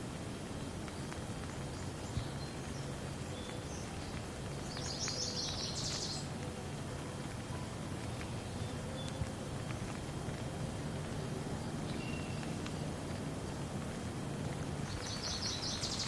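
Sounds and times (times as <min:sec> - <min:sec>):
rain drop ticks: 0:00.0 - 0:16.0
steady rain hiss: 0:00.0 - 0:16.0
bird chirping: 0:01.5 - 0:06.5, 0:11.0 - 0:12.8, 0:14.8 - 0:16.0.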